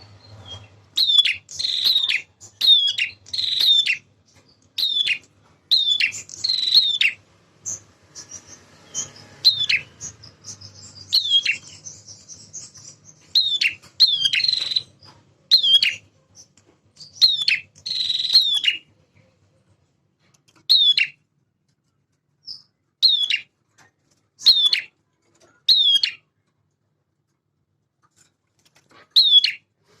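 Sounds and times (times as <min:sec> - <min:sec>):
bird calls sweeping downward: 0:08.2 - 0:12.0.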